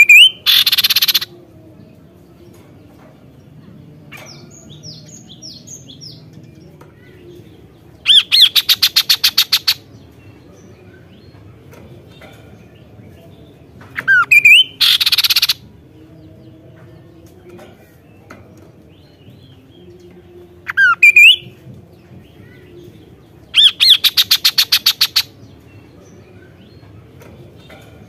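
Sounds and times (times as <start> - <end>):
bird rapid trill: 0.0 - 1.3, 8.0 - 9.9, 14.0 - 15.6, 20.7 - 21.4, 23.6 - 25.4
bird singing sharp notes: 0.0 - 1.3, 14.0 - 15.6, 20.6 - 21.6, 23.5 - 25.4
bird whistled notes: 0.0 - 1.3, 14.0 - 15.6, 20.7 - 21.5.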